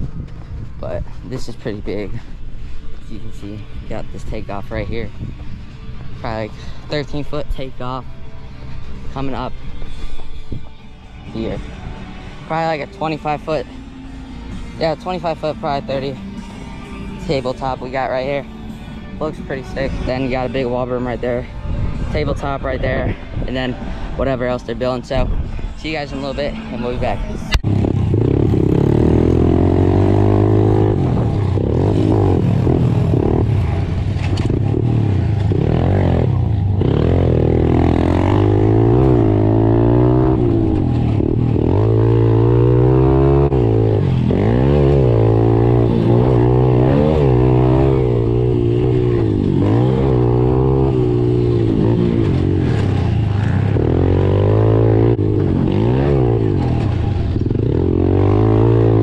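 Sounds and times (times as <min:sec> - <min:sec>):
pit bike engine revving: 0:27.6 - 0:59.0.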